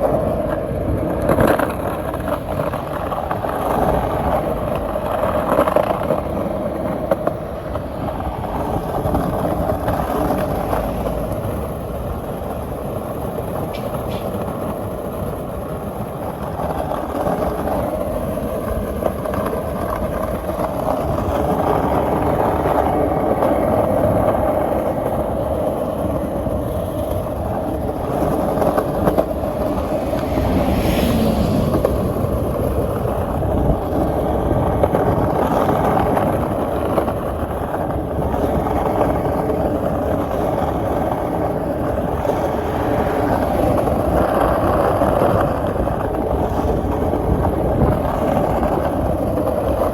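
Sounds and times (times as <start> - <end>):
street traffic rumble: 0.0 - 49.9
vehicle passing: 17.0 - 37.0.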